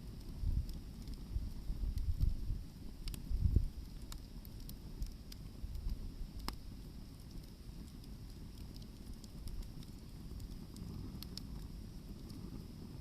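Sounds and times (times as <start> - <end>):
firewood crackling and popping: 0.0 - 13.0.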